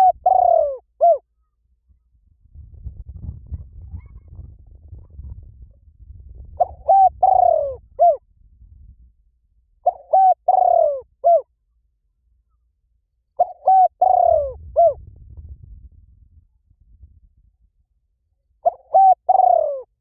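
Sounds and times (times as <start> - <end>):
bird cooing call: 0.0 - 1.2, 6.6 - 8.2, 9.8 - 11.4, 13.4 - 15.0, 18.6 - 20.0.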